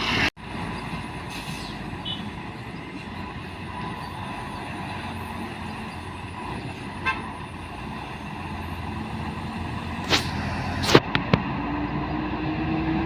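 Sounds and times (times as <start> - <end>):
truck diesel engine labouring: 0.0 - 13.0
truck horn toot: 2.0 - 2.3, 7.0 - 7.4.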